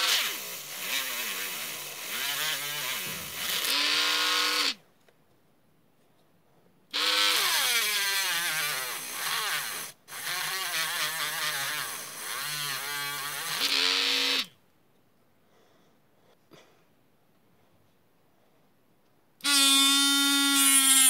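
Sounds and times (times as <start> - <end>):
small motor whining: 0.0 - 4.8.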